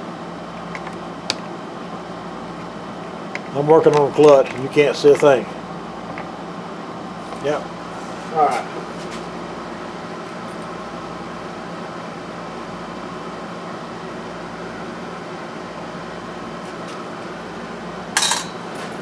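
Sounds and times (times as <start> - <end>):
steady mechanical hum: 0.0 - 19.0
sharp metallic clink: 18.2 - 18.7.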